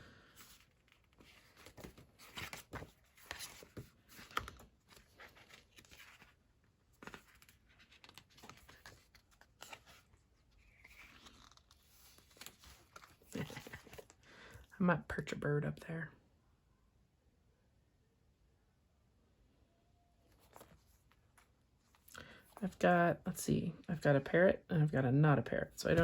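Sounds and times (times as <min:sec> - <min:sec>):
paper rustling and ticking: 0:07.0 - 0:14.2.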